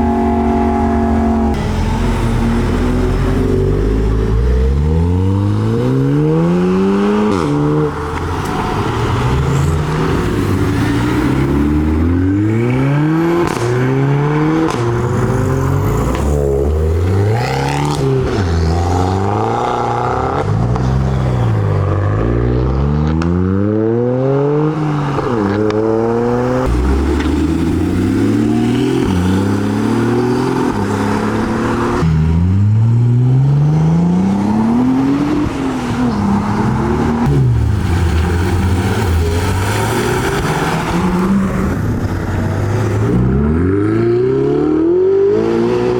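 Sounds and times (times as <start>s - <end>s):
sports car engines accelerating: 0.0s - 45.9s.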